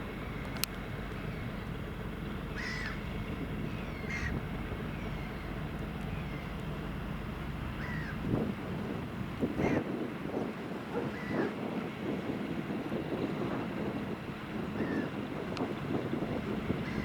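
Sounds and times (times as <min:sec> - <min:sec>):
engine drone: 0:00.0 - 0:17.0
bird calling: 0:02.5 - 0:06.7, 0:07.7 - 0:08.2.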